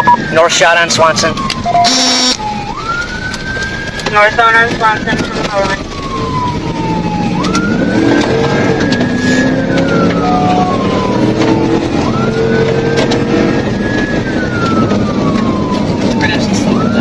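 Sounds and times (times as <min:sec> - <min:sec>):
police siren wailing: 0:00.0 - 0:17.0
road noise: 0:00.0 - 0:17.0
car engine running hard: 0:02.4 - 0:17.0.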